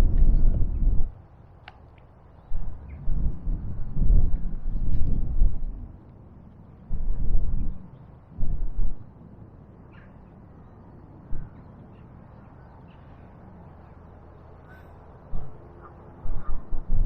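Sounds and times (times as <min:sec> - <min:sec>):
low steady rumble: 0:00.0 - 0:01.5, 0:02.2 - 0:17.0
faint bird calls: 0:09.9 - 0:17.0.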